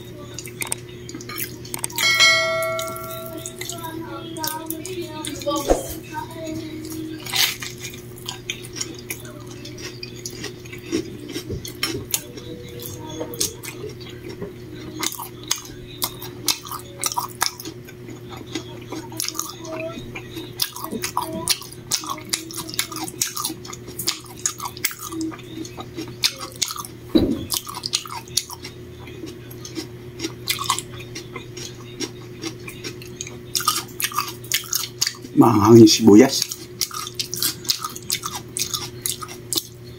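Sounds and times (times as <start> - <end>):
steady low hum: 0.0 - 39.9
close chewing and wet mouth clicks: 7.6 - 14.4, 15.0 - 26.9, 27.5 - 35.4, 36.4 - 39.8.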